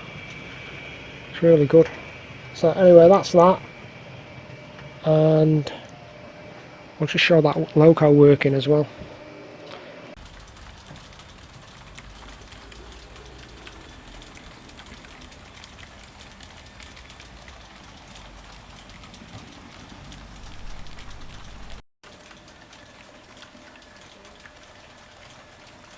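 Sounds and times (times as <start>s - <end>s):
model train motor rumble: 0.0s - 9.3s, 10.0s - 21.8s
wheels clicking over rails: 10.2s - 21.8s.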